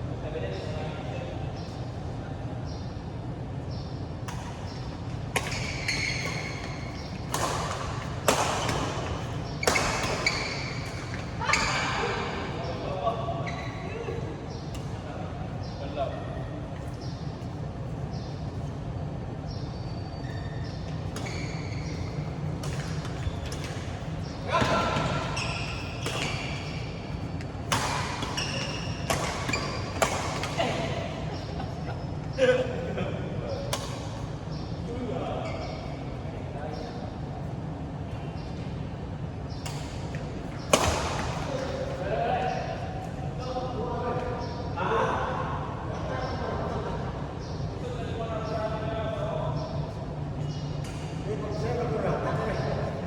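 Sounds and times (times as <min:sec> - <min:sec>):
racket striking shuttlecock: 0:04.2 - 0:11.7, 0:21.9 - 0:30.7, 0:39.5 - 0:41.6
short high squeaks: 0:05.4 - 0:07.1, 0:09.6 - 0:12.0, 0:20.0 - 0:22.3, 0:25.1 - 0:26.9
shoes squeaking on floor: 0:05.4 - 0:08.0, 0:08.6 - 0:12.2, 0:13.4 - 0:14.0, 0:19.5 - 0:30.7.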